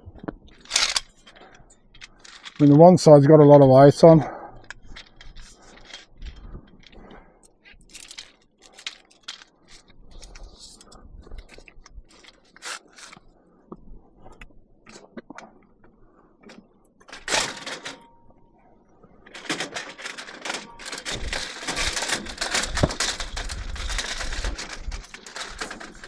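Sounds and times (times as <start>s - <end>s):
metallic clicking and rattling: 0.5s - 2.8s, 17.1s - 18.1s, 19.3s - 26.0s
metal clatter: 0.6s - 2.7s, 17.1s - 18.2s, 19.3s - 26.0s.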